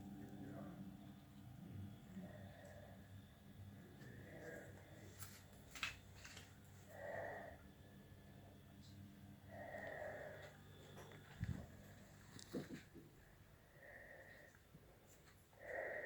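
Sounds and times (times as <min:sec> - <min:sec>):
person breathing: 0:02.1 - 0:05.5, 0:06.2 - 0:07.6, 0:09.4 - 0:16.0.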